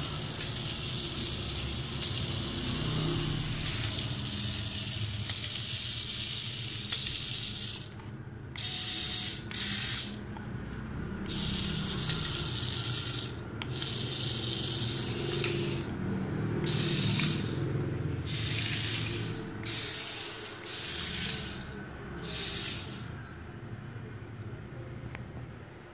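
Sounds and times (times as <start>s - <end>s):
toy truck electric motors whirring: 0.0s - 10.3s, 11.2s - 23.4s.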